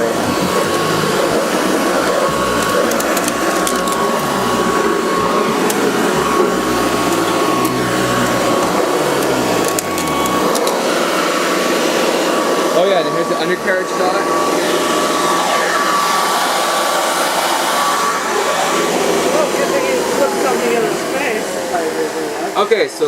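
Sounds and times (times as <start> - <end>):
upright vacuum cleaner running: 0.0 - 23.0
scattered clicks: 2.5 - 4.2, 9.2 - 10.8.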